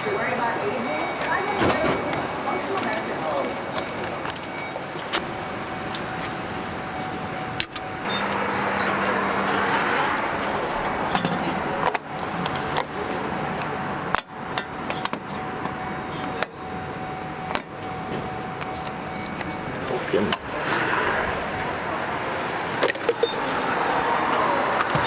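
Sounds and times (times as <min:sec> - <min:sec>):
road and engine noise in van: 0:00.0 - 0:25.0.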